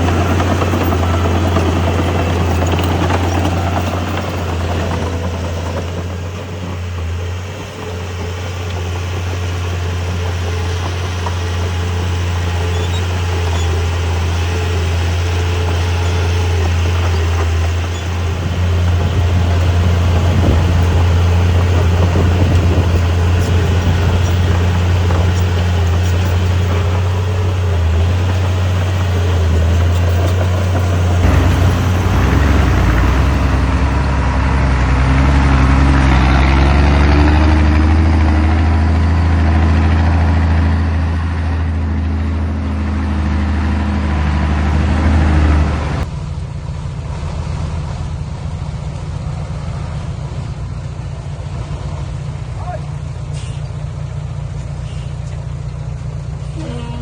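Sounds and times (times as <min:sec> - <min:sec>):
heavy diesel engine humming: 0:00.0 - 0:57.0.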